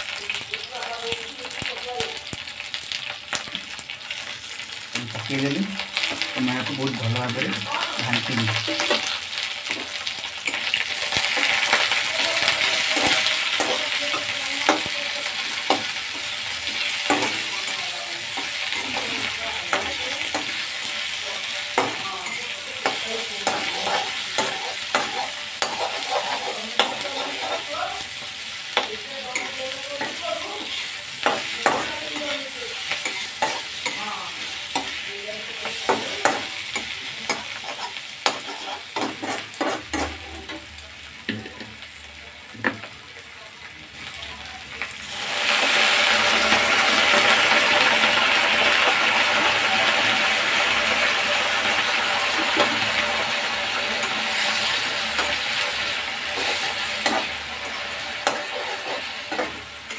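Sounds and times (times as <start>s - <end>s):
onions sizzling in hot oil: 0.0s - 59.9s
spatula scraping a pan: 8.6s - 40.7s, 52.2s - 59.9s.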